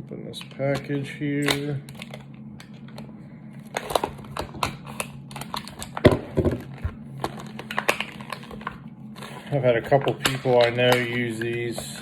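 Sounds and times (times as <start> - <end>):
packaging clicks and crinkles: 0.4 - 12.0.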